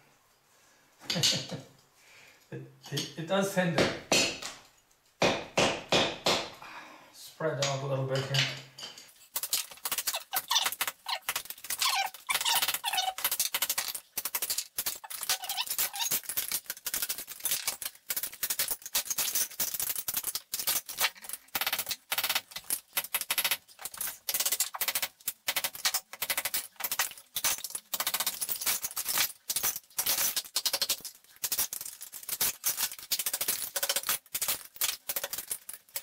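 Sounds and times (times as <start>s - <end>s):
tiles clattering loose: 8.2s - 36.0s
chisel scraping behind tiles: 8.8s - 31.0s.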